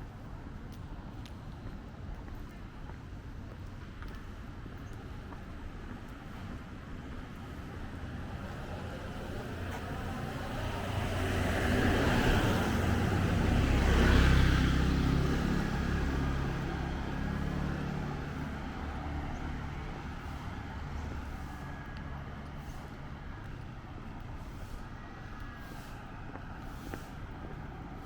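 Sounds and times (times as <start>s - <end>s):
background traffic hum: 0.0s - 28.0s
vehicles passing: 0.0s - 28.0s.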